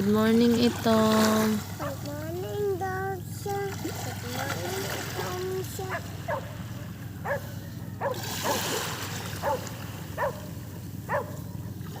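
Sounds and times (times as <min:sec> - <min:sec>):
steady low hum: 0:00.0 - 0:12.0
dog yipping: 0:06.3 - 0:06.5, 0:07.2 - 0:08.6, 0:09.4 - 0:10.5, 0:11.1 - 0:11.4.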